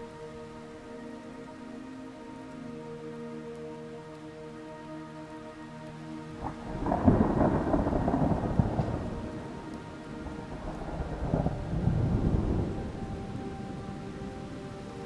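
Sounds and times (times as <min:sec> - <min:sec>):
thunder rumbling: 0:06.4 - 0:15.0.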